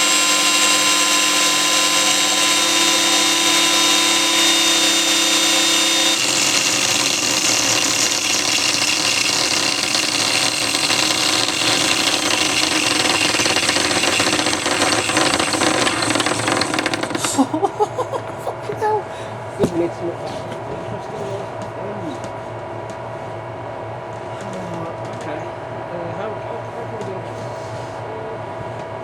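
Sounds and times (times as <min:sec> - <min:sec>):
electric motor whining: 0:00.0 - 0:17.6
bearing rattle: 0:05.5 - 0:17.5.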